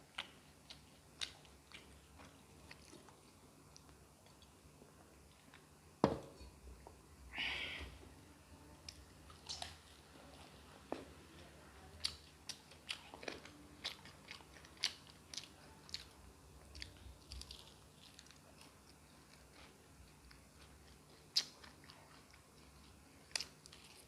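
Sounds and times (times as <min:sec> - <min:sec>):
chewing and biting: 0:00.0 - 0:04.5, 0:12.0 - 0:24.0.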